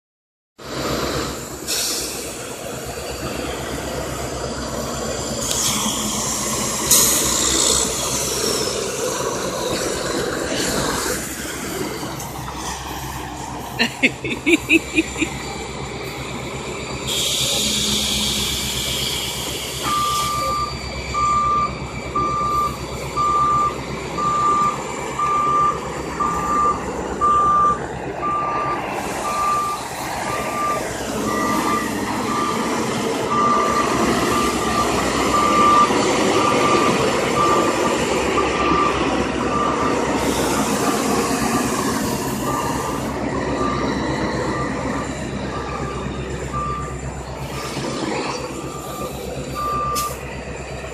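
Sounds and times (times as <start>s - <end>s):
truck engine running: 0.6s - 50.9s
backup alarm beeping: 19.8s - 40.4s, 41.1s - 47.7s, 48.3s - 50.2s.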